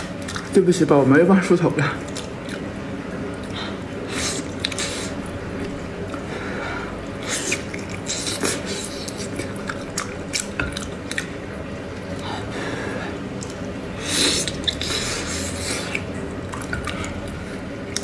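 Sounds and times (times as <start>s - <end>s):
wet chewing and lip smacking: 2.0s - 2.7s, 4.3s - 6.2s, 7.2s - 11.4s, 14.3s - 18.0s.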